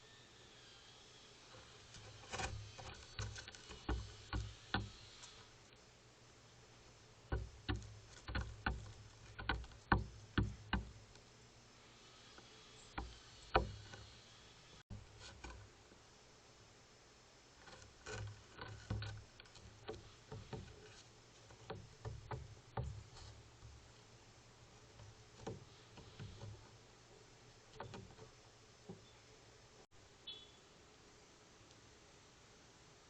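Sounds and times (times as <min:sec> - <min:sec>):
bird pecking at a feeder: 0:01.6 - 0:05.4, 0:07.3 - 0:11.2, 0:17.6 - 0:24.0.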